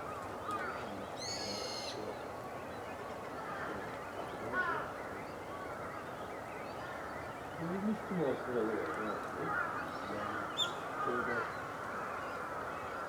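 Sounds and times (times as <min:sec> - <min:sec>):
outdoor background hiss: 0:00.0 - 0:04.9.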